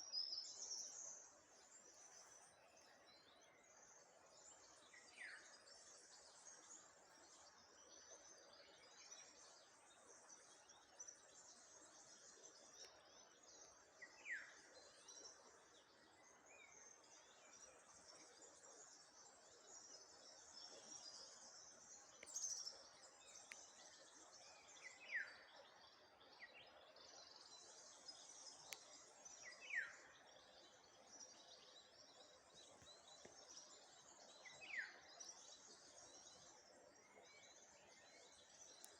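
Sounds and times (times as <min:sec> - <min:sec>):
high chatter of birds or insects: 0:00.0 - 0:38.9.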